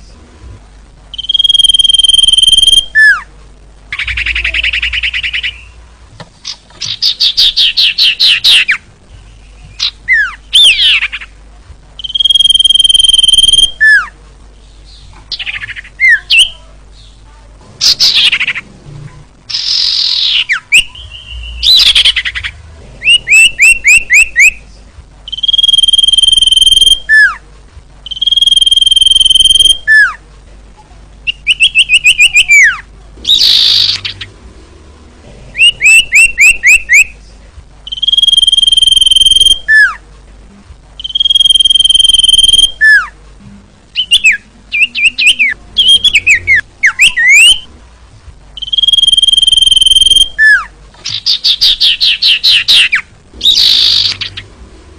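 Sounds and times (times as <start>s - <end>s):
bird calling: 1.2s - 3.3s, 12.0s - 14.1s, 19.5s - 24.6s, 44.0s - 47.7s, 48.6s - 54.5s.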